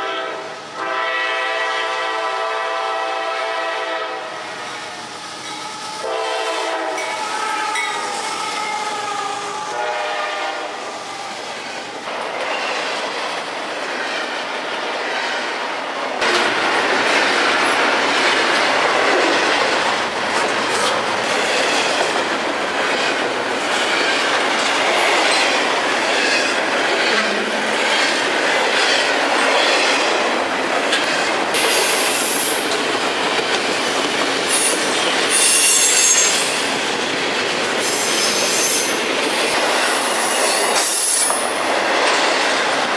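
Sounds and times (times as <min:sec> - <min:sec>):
locomotive horn: 0:00.0 - 0:05.1, 0:05.9 - 0:08.6, 0:09.4 - 0:10.9, 0:26.9 - 0:28.4
train wheels clickety-clack: 0:11.6 - 0:42.9
high wheel squeal: 0:34.5 - 0:36.7.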